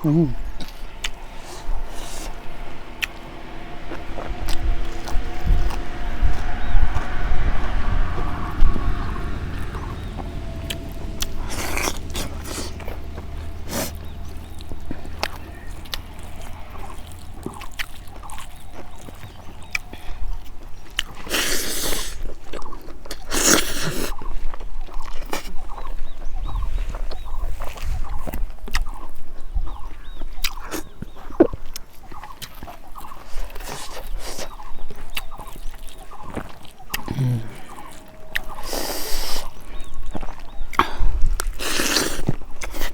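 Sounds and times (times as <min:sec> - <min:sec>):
loud noisy stretches: 0:00.0 - 0:22.3
chewing: 0:00.0 - 0:42.9.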